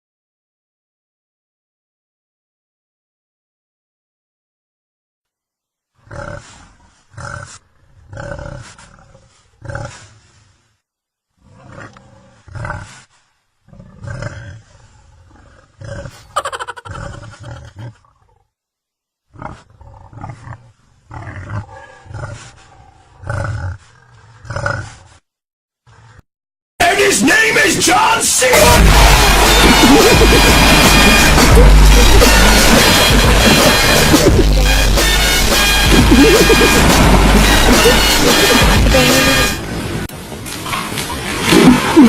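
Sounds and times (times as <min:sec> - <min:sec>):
recorded tiger roars and growls: 0:06.0 - 0:10.6, 0:11.3 - 0:18.6, 0:19.2 - 0:25.2, 0:25.8 - 0:26.3.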